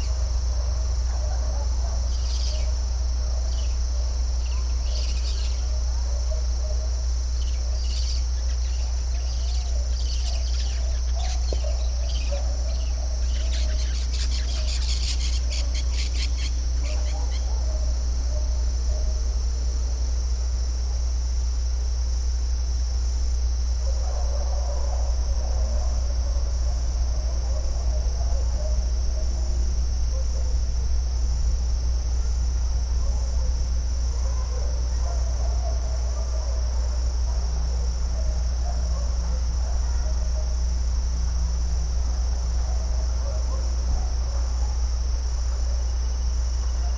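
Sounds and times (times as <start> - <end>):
insect chorus: 0.0 - 46.9
lower chirping calls: 2.1 - 2.7, 4.4 - 5.7, 7.4 - 17.5
birds chirping: 7.4 - 17.5.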